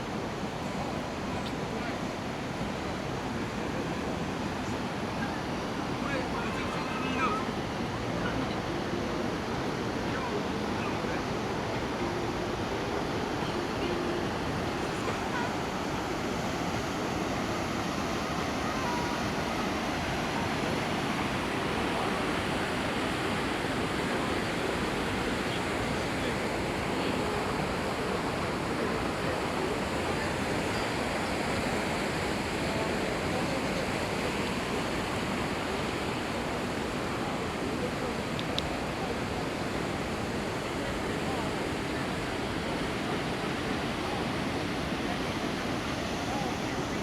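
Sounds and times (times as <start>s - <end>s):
river water rushing: 0.0s - 47.0s.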